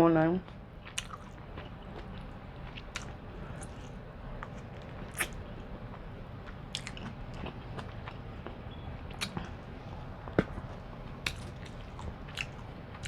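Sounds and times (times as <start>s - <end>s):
wet chewing: 0.4s - 13.0s
mouth clicks and lip smacks: 0.9s - 1.4s, 11.2s - 12.6s.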